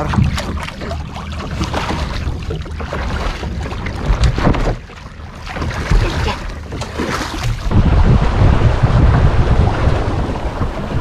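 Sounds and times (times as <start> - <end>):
water lapping around boat: 0.0 - 11.0
wind buffeting microphone: 5.6 - 11.0.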